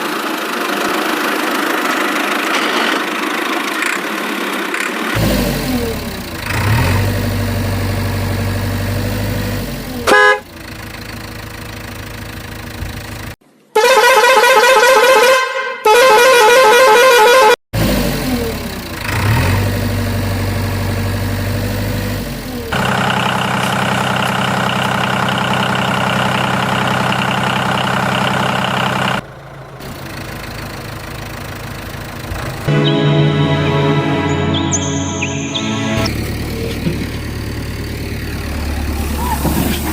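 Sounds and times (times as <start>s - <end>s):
engine running: 5.2s - 13.3s, 18.2s - 39.9s
warbling vehicle horn blasts: 10.1s - 10.4s, 32.3s - 36.3s.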